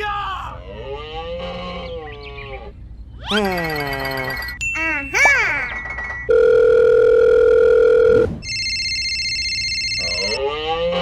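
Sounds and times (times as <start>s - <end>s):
electronic ringing tone: 3.3s - 10.4s
telephone dial tone: 6.3s - 10.4s.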